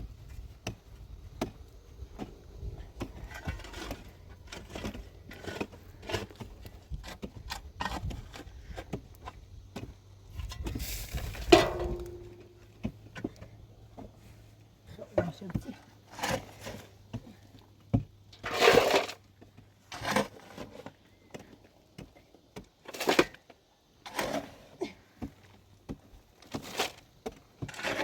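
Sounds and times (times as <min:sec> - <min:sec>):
rustling hiss: 0:10.7 - 0:11.7.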